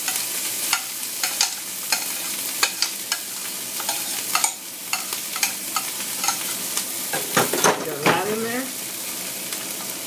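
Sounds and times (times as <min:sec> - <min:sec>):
rice sizzling in hot oil: 0:00.0 - 0:10.0
metal utensil scraping pot: 0:00.1 - 0:06.6
metal utensil clinking on pot: 0:03.8 - 0:06.5.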